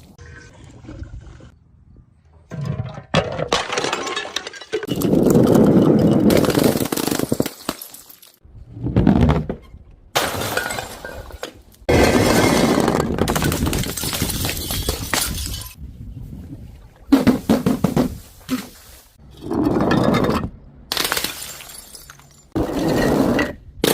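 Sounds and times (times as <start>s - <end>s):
glass bottles shattering: 3.4s - 8.4s, 10.2s - 12.7s, 13.3s - 15.8s, 20.9s - 23.9s.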